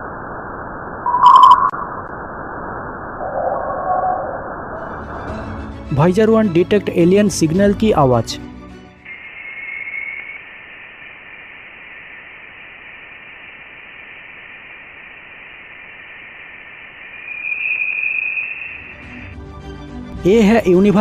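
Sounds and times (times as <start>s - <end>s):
radio static hiss: 0.0s - 4.8s, 9.1s - 19.4s
thin steady high whistle: 1.1s - 1.9s, 9.1s - 19.3s.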